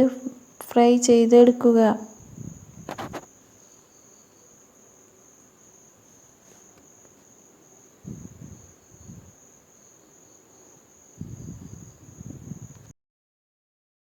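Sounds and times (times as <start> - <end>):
cricket trilling: 0.0 - 12.9
quick clicks: 2.8 - 3.3.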